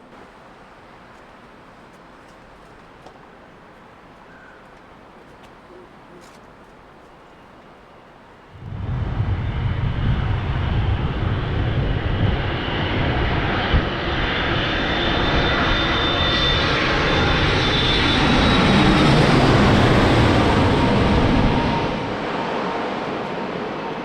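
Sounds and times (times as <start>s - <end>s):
jet engines roaring: 8.5s - 24.0s
thin engine whine: 8.6s - 23.0s.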